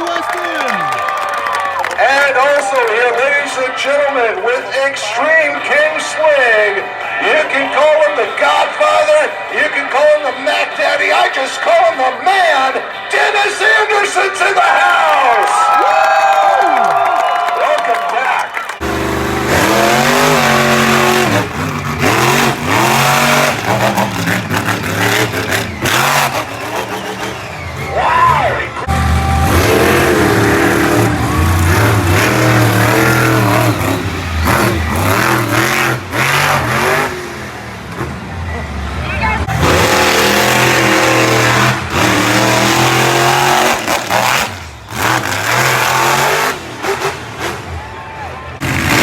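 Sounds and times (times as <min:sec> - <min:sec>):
monster truck engine revving: 0:18.7 - 0:49.0.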